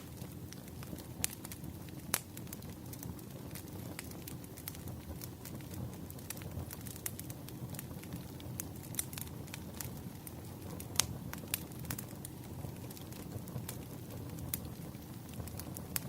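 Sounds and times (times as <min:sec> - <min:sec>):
fire rumbling: 0:00.0 - 0:16.0
wood crackling and popping: 0:00.0 - 0:16.0.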